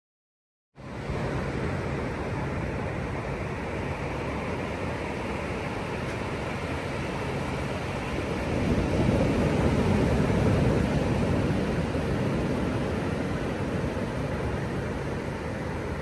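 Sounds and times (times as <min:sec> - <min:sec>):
ocean waves breaking: 0:00.8 - 0:16.0
steady rush of sea: 0:00.8 - 0:16.0.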